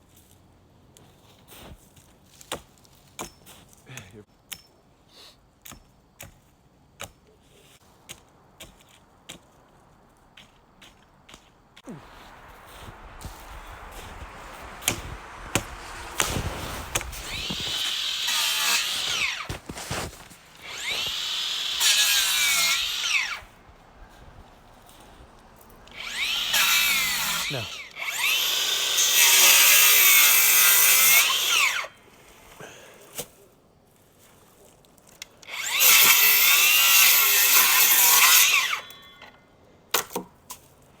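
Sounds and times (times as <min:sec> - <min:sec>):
hand saw cutting wood: 0:14.8 - 0:23.5, 0:25.9 - 0:31.9, 0:35.4 - 0:39.1
electric power tool motor whining: 0:17.0 - 0:19.5, 0:20.6 - 0:23.4, 0:25.9 - 0:31.8.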